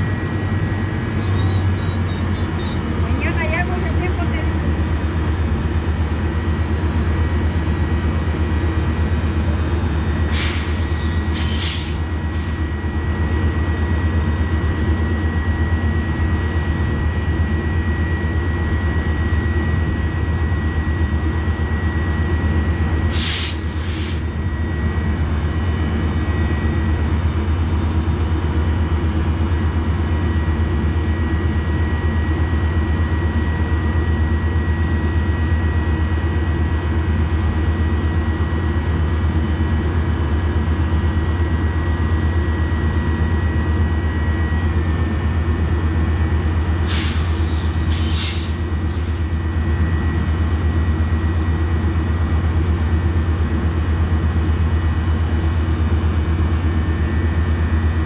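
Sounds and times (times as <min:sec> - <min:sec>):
commuter train running: 0:00.0 - 0:58.0
short hisses: 0:10.4 - 0:12.1, 0:23.1 - 0:24.3, 0:46.9 - 0:49.2.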